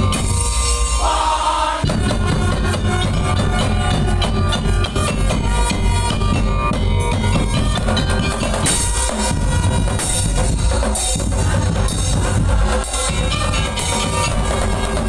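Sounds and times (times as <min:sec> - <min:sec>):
bright cymbal crashes: 0:00.0 - 0:01.4
heavy bass drum beating: 0:00.0 - 0:15.0.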